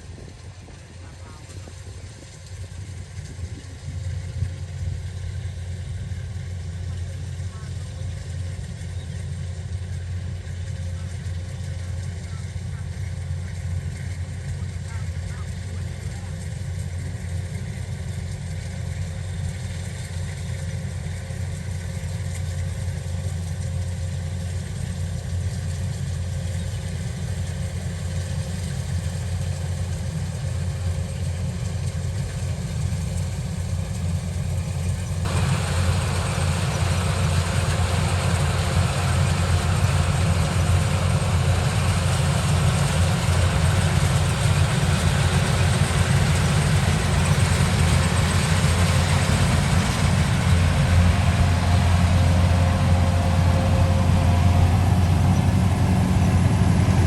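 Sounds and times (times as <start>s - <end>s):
engine humming: 0.0s - 57.0s
wide rushing noise: 35.2s - 57.0s.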